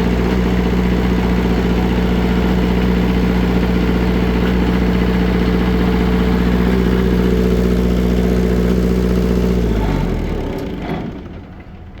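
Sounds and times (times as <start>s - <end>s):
diesel engine running and stopping: 0.0s - 12.0s.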